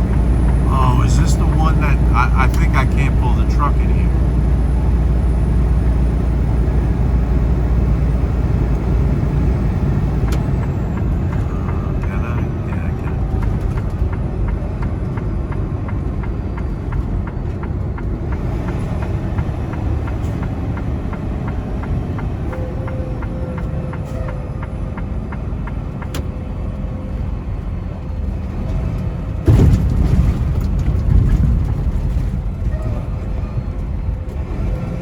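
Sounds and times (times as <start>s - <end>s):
truck engine and road rumble: 0.0s - 35.0s.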